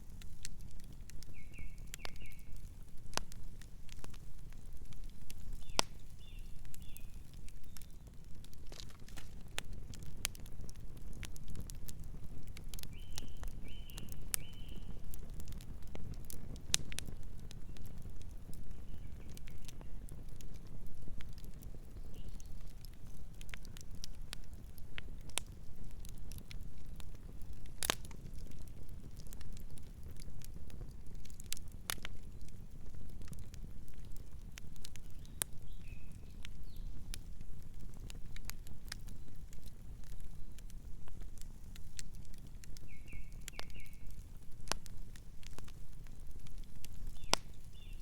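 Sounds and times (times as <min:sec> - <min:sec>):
campfire crackling and popping: 0:00.0 - 0:48.0
nocturnal bird chirping: 0:01.3 - 0:02.6, 0:12.9 - 0:14.9, 0:42.9 - 0:44.1.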